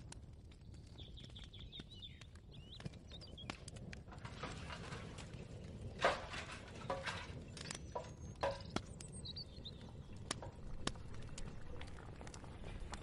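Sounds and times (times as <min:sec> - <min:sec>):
bird chirps: 0:00.8 - 0:03.6, 0:07.5 - 0:10.3
cookware and utensils clinking: 0:06.0 - 0:08.7.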